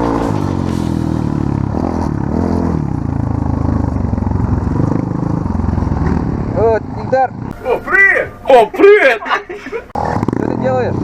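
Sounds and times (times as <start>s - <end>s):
off-road vehicle engine revving: 0.0s - 7.6s.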